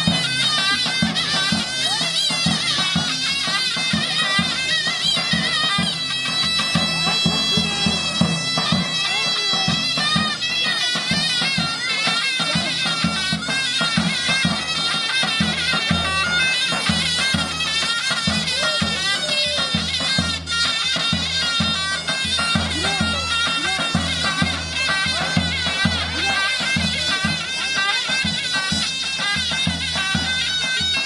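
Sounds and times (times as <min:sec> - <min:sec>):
shrill reed pipe melody: 0:00.0 - 0:31.0.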